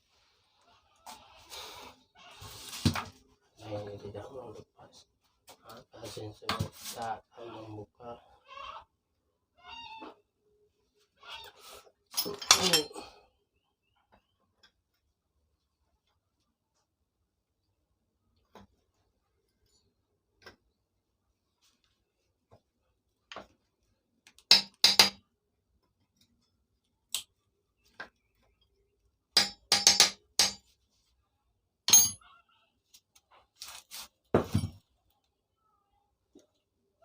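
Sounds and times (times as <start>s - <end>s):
tools striking metal: 12.2s - 12.9s, 24.5s - 25.2s, 29.4s - 30.6s, 31.9s - 32.2s.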